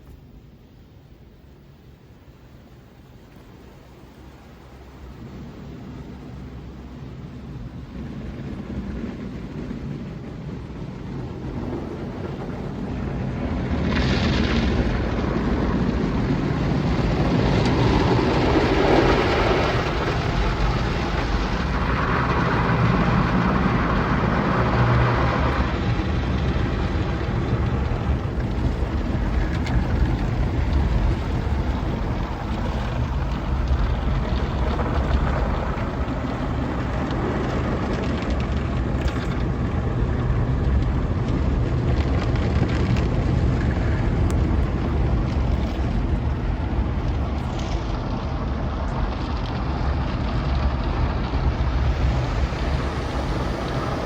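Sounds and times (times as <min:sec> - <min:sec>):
car wash machinery rumbling: 0:00.0 - 0:54.0
rushing air: 0:02.5 - 0:54.0
hissing water spray: 0:51.4 - 0:54.0.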